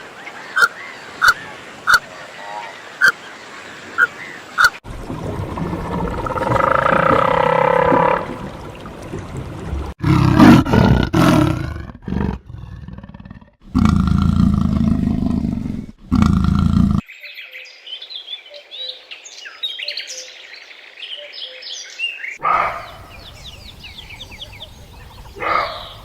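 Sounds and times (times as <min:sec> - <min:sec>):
songbirds chirping: 0:00.0 - 0:04.8, 0:17.1 - 0:26.0
big cat roaring and growling: 0:05.5 - 0:08.4, 0:10.0 - 0:17.0.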